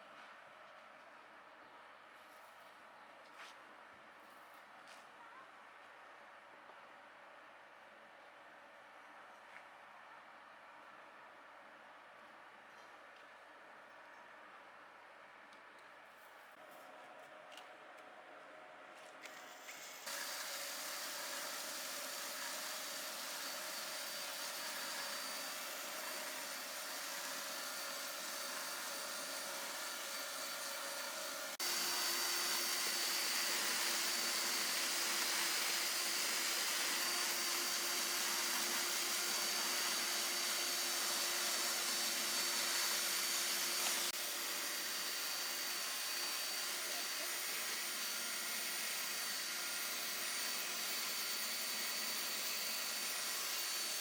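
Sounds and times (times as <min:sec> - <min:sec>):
small motor whirring: 0:19.2 - 0:54.0.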